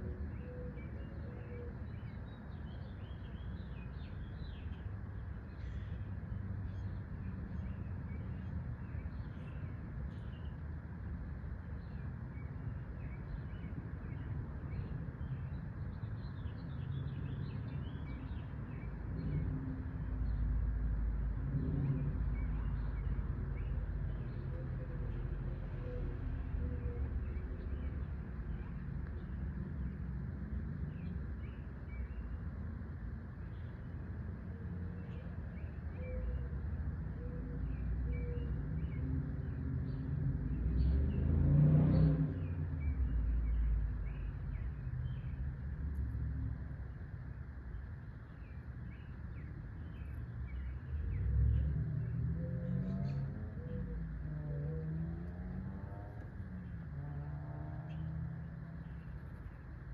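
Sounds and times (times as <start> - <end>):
small birds chirping: 41.9 - 57.0, 57.9 - 59.9.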